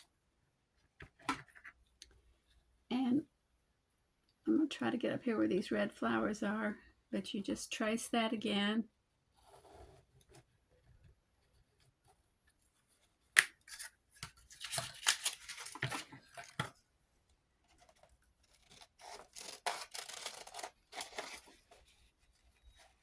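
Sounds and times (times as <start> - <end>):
scissors cutting paper: 17.8 - 21.6.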